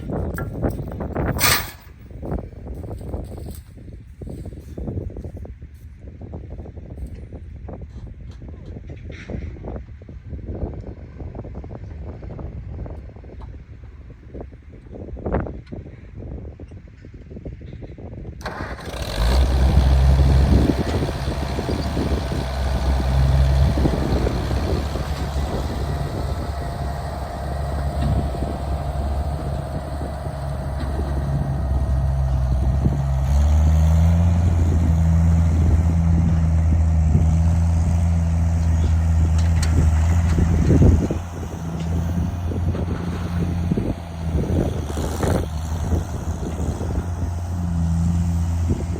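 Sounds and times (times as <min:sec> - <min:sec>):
engine running: 0:18.4 - 0:48.9.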